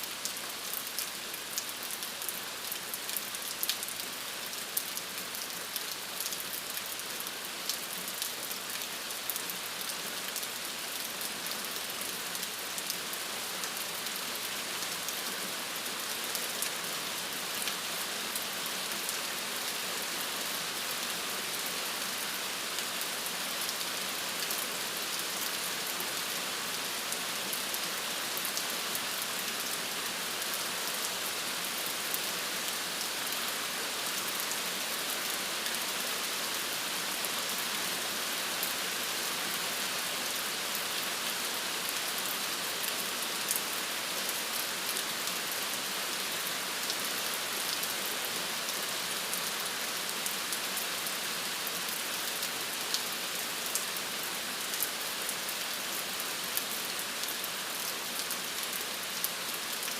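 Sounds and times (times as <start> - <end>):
rain falling: 0.0 - 59.9
raindrops ticking on a surface: 0.1 - 16.8.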